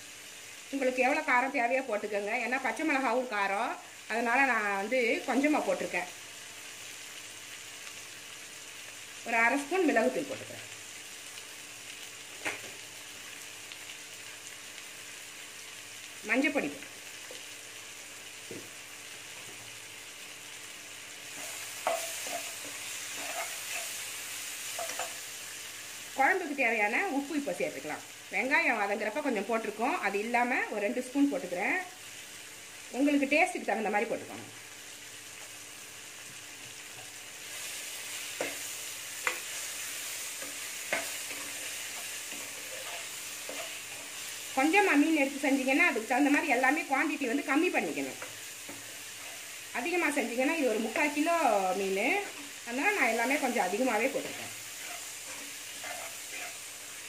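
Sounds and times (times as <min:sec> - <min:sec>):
vegetables sizzling in a pan: 0:00.0 - 0:57.0
steel spoon scraping a pan: 0:21.3 - 0:25.3, 0:37.5 - 0:44.8, 0:48.0 - 0:49.6, 0:52.1 - 0:56.8.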